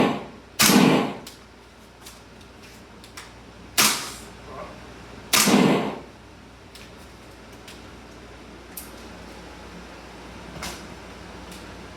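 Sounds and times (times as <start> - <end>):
gunshots with ringing tail: 0.0 - 1.2, 5.3 - 6.1.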